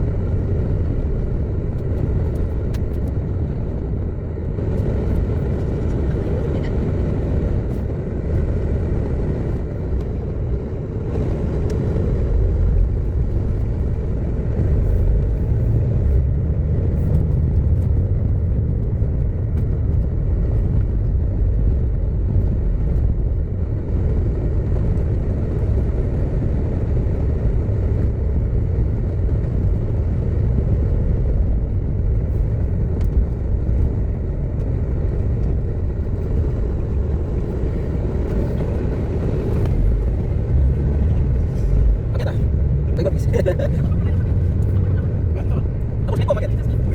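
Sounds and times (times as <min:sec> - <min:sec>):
car engine: 0:00.0 - 0:46.9
road rumble: 0:00.0 - 0:46.9.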